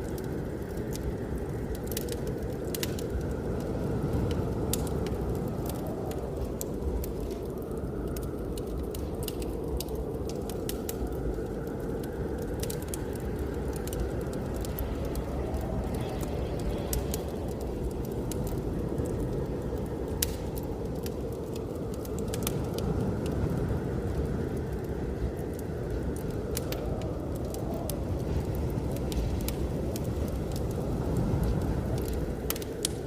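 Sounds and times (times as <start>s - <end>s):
blizzard wind rumbling: 0.0s - 33.0s
wood fire crackling: 0.0s - 33.0s.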